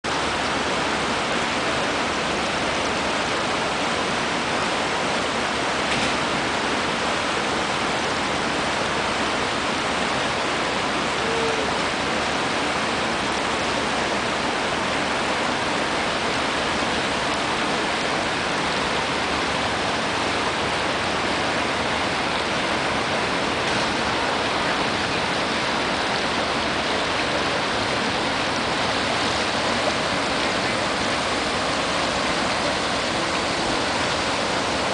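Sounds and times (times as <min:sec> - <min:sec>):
rushing water: 0:00.0 - 0:34.9.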